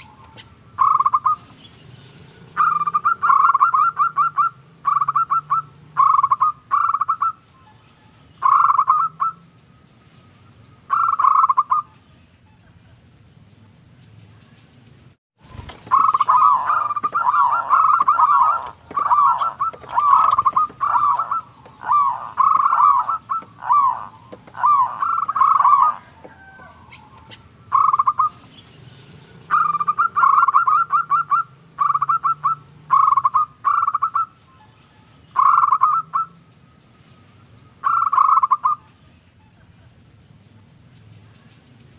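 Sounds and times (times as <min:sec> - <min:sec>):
dove cooing: 0:02.4 - 0:07.4, 0:08.4 - 0:09.4, 0:10.9 - 0:12.0, 0:15.5 - 0:28.5, 0:29.3 - 0:34.8, 0:35.4 - 0:36.4, 0:37.8 - 0:38.8.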